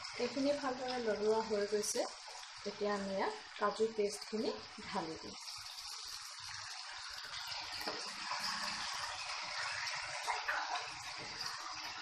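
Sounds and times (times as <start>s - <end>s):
food sizzling in a pan: 0.0s - 12.0s
spoon scraping a pan: 7.8s - 11.7s.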